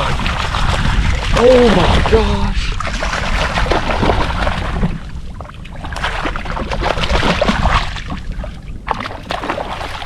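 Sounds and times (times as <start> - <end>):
water splashing around kayak: 0.0 - 10.0.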